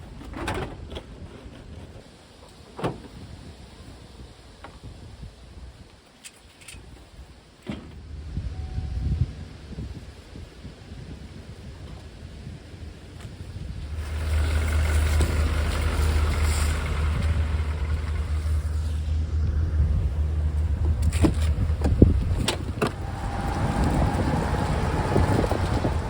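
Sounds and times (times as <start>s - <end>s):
vehicle engine and road rumble: 6.5s - 26.0s.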